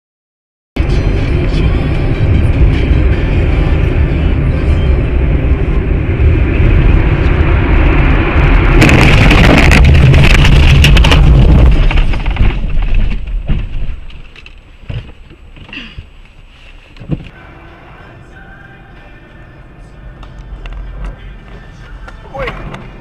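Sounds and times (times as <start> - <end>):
harsh noise: 0.8 - 13.6
car rumbling on road: 0.8 - 23.0.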